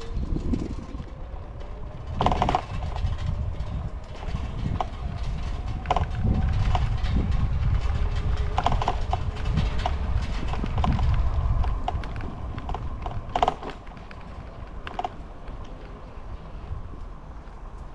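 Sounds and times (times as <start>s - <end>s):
wind and road rumble: 0.0s - 17.9s
bike squeaks and clicks: 11.9s - 17.9s.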